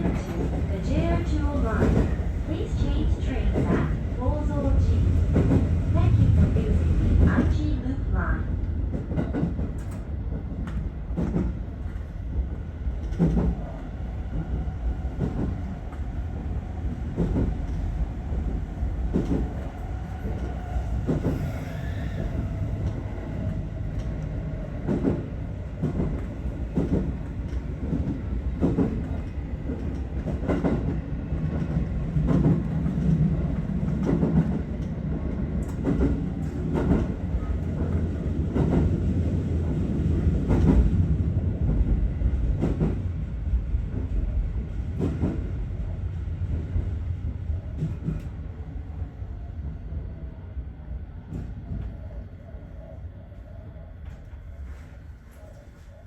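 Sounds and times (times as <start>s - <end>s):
train rumble: 0.0s - 56.0s.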